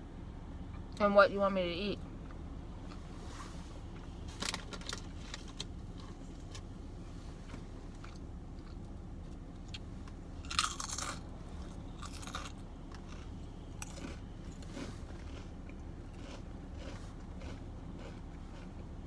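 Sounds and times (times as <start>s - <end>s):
crunchy chewing: 10.4s - 19.0s.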